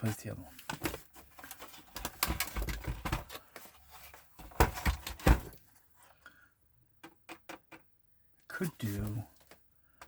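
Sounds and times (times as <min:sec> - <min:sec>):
console parts clicking and knocking: 0:00.6 - 0:03.7, 0:04.4 - 0:05.6, 0:07.0 - 0:07.9.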